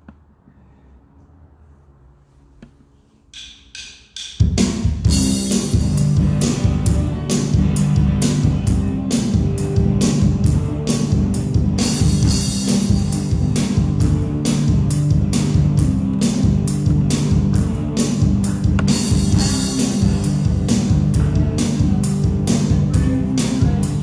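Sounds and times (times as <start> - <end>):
band playing: 5.0 - 24.0.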